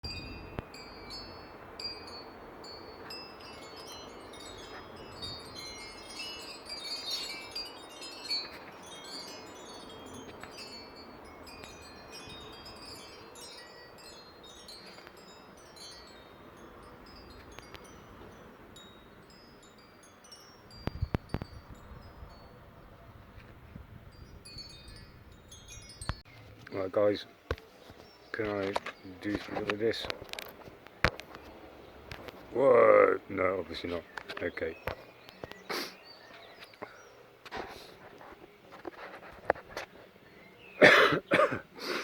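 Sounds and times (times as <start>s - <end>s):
chimes tinkling: 0.0s - 22.8s, 24.1s - 27.2s.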